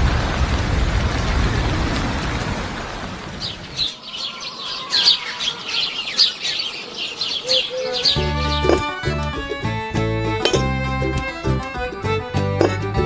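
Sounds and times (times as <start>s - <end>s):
small birds chirping: 3.3s - 9.7s.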